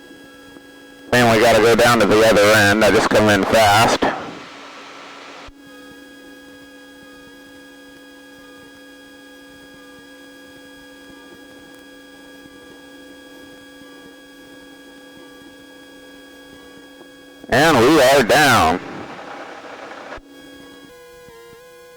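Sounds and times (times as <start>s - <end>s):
airplane cockpit engine hum: 1.2s - 5.5s, 17.5s - 20.2s.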